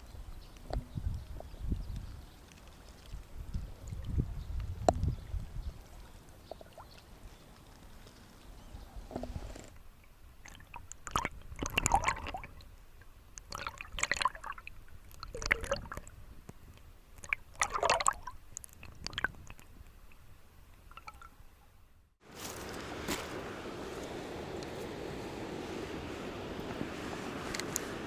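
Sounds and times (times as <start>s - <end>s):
lure splashing and clicking in water: 10.4s - 12.6s, 13.3s - 21.4s.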